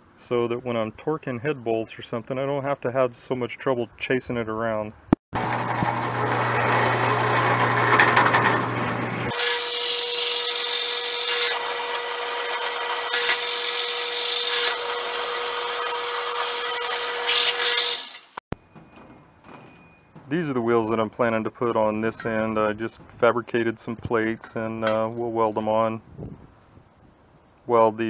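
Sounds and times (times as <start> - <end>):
power tool grinding steel: 5.4 - 18.4.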